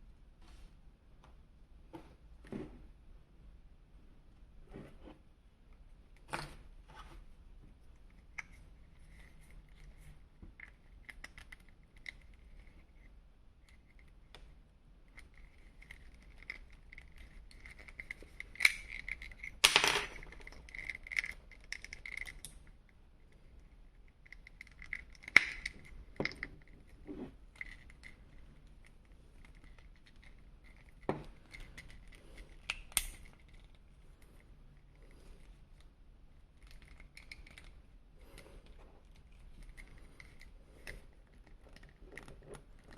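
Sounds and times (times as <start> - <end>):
plastic pieces clicking and scraping: 15.2 - 22.7, 24.2 - 34.4.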